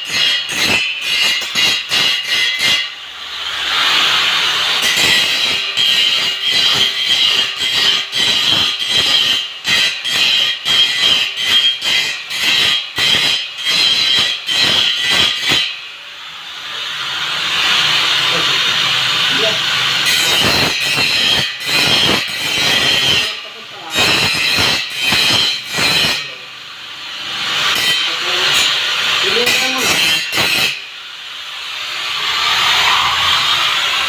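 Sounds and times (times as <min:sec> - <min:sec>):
angle grinder grinding steel: 0:00.0 - 0:34.0.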